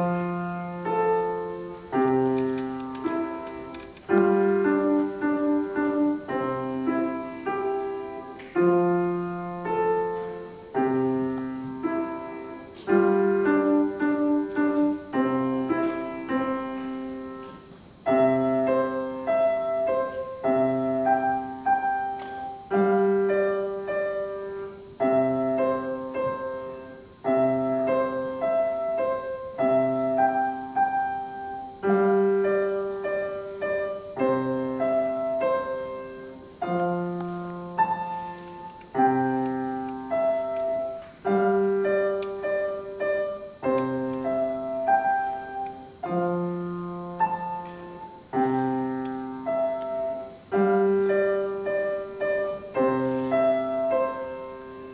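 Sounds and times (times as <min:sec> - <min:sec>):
solo piano march: 0:00.0 - 0:54.9.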